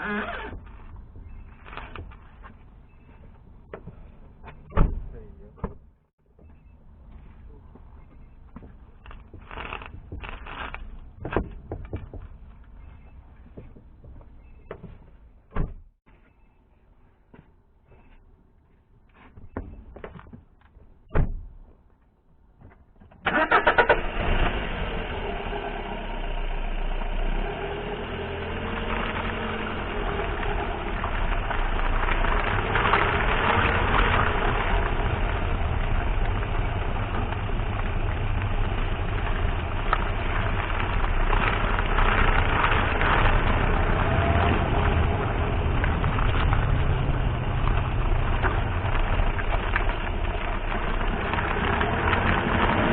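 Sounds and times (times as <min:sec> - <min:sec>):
car engine cranking and running: 0:23.2 - 0:52.9.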